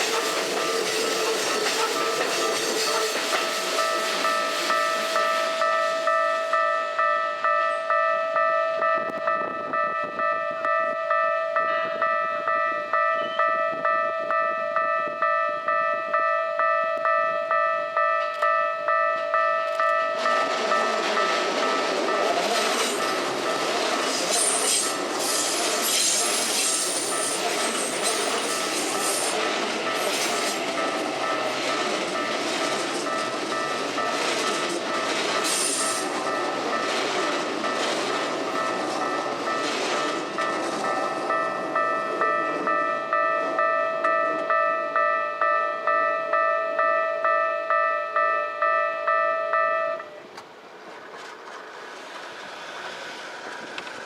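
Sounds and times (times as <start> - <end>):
wheels squealing on rails: 0.0 - 6.7, 19.8 - 43.4, 50.0 - 54.0
level-crossing bell dinging: 0.0 - 25.8, 26.8 - 50.2
electric train passing: 0.0 - 54.0.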